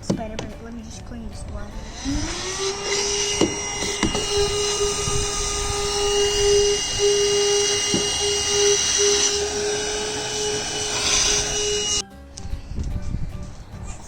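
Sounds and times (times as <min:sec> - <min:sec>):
handheld vacuum cleaner running: 0:01.7 - 0:12.0.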